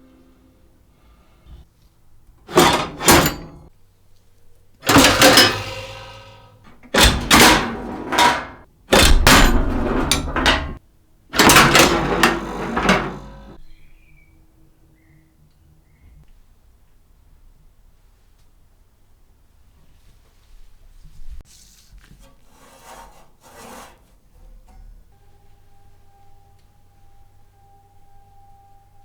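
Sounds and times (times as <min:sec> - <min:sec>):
arcade machine knocks and rattles: 0:02.5 - 0:03.7, 0:04.8 - 0:10.8, 0:11.4 - 0:13.6.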